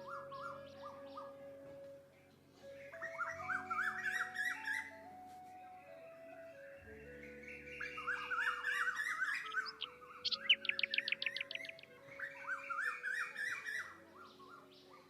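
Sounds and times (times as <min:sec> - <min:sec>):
birds singing warbling phrases: 0:00.0 - 0:15.0
soft background music: 0:00.0 - 0:15.0
sharp bird chirps: 0:07.1 - 0:14.5.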